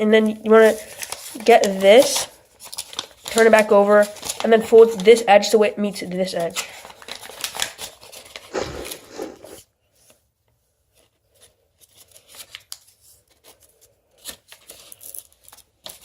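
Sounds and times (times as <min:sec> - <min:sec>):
paper rustling: 0:00.2 - 0:16.0
paper being creased: 0:00.7 - 0:05.1, 0:06.6 - 0:09.6, 0:10.9 - 0:16.0.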